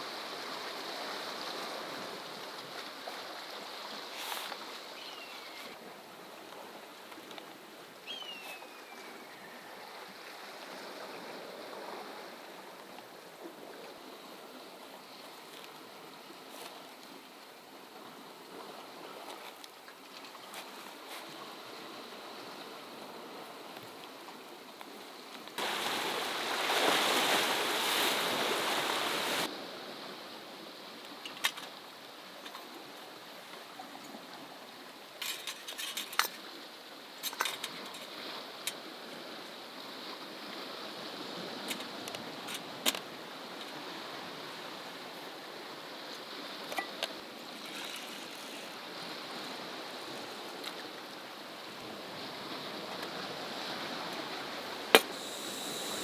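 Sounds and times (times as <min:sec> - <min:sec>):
sea waves washing over rocks: 0:25.6 - 0:29.6.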